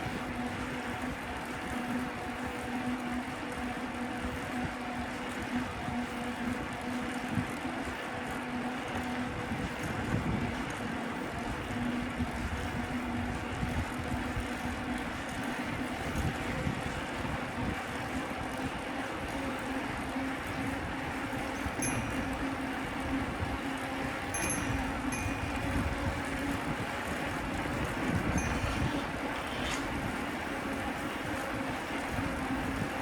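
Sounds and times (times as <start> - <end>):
steady low hum: 0.0 - 33.0
wind buffeting microphone: 9.3 - 33.0.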